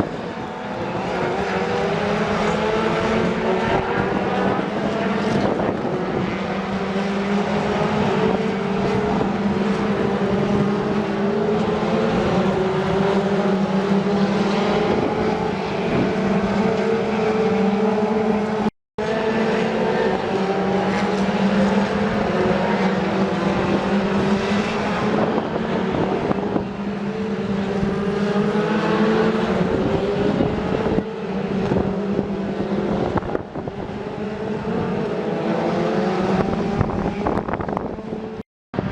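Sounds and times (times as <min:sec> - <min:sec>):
race car engines accelerating: 0:00.0 - 0:38.9
steady engine drone: 0:00.0 - 0:38.9.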